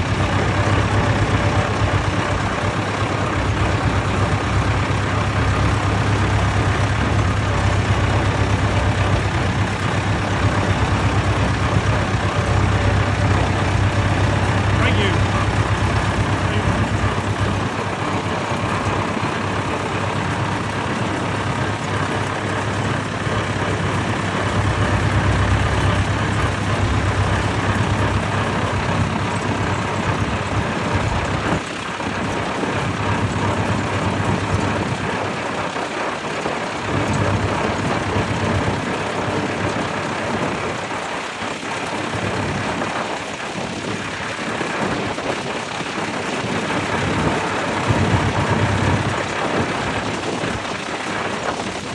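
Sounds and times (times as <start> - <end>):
steady low hum: 0.0 - 31.6
tractor engines running: 0.0 - 51.9.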